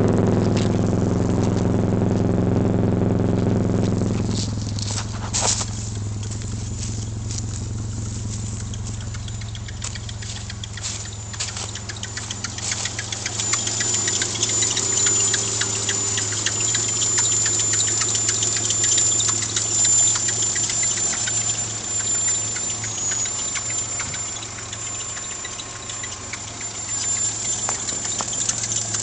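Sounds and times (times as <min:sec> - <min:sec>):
car engine idling: 0:00.0 - 0:29.0
rapid chirps and ticks: 0:03.7 - 0:29.0
belt squealing: 0:08.2 - 0:29.0.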